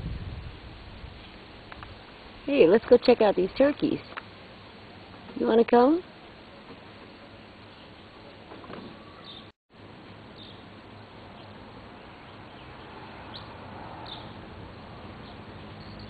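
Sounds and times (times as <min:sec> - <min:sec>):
outdoor background noise: 0:00.0 - 0:16.0
high bird chirps: 0:09.0 - 0:09.5.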